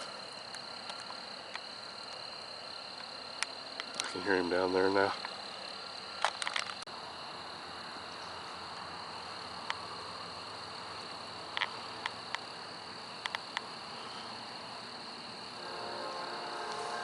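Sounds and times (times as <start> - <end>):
night insects trilling: 0.0 - 17.0
distant freight train: 7.1 - 17.0.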